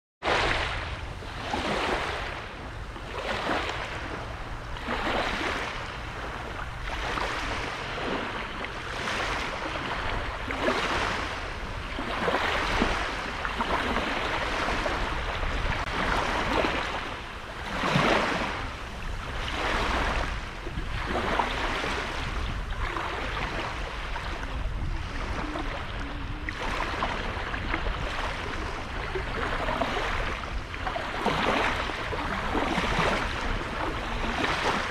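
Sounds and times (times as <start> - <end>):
small waves breaking ashore: 0.2 - 34.9
wind rumble on microphone: 0.2 - 34.9.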